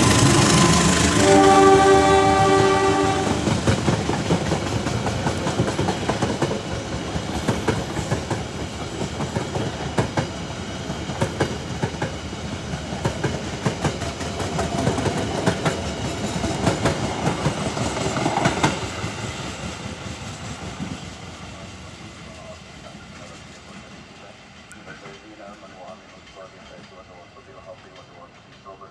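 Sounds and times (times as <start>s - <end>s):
train wheels clacking on rail joints: 0.0s - 21.1s
train rumble: 0.0s - 28.9s.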